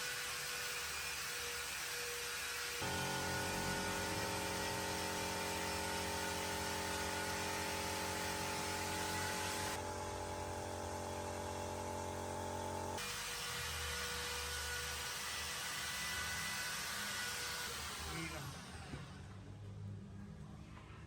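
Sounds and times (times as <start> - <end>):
machine hum with held tones: 2.8 - 13.0.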